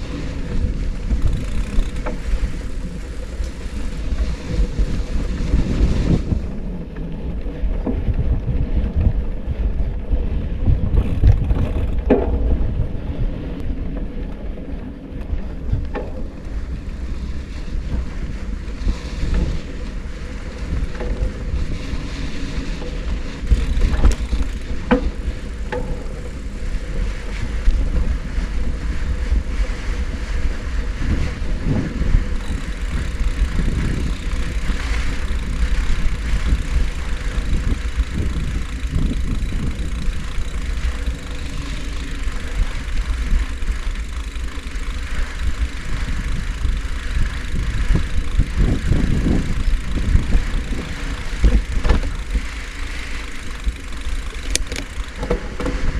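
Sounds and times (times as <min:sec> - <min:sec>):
bicycle tyre noise: 0:00.0 - 0:30.7, 0:31.3 - 0:55.9
wind rumbling on microphone: 0:00.0 - 0:55.9
knocks and rattles: 0:10.9 - 0:12.4, 0:23.5 - 0:25.0, 0:32.4 - 0:55.8.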